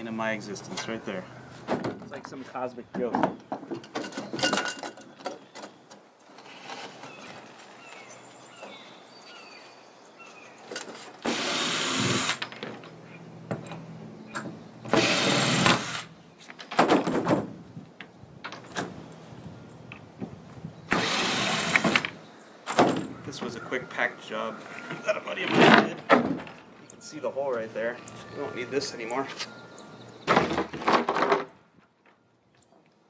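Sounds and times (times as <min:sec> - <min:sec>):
power drill running: 0:11.2 - 0:12.4, 0:20.9 - 0:21.9.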